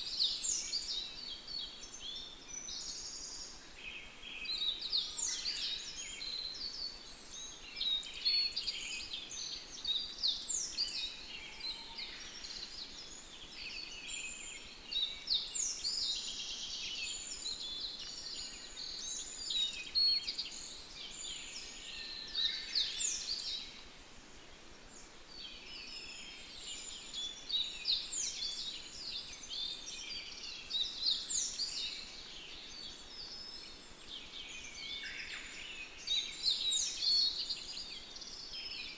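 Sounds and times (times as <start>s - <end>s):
faint steady hiss: 0.0s - 38.9s
songbirds singing: 0.0s - 38.9s.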